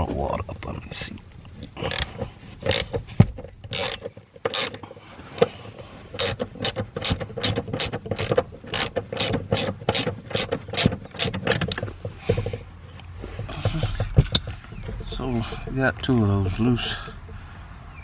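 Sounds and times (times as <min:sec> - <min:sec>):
socket ratchet clicking: 0:01.8 - 0:04.8, 0:06.1 - 0:12.6.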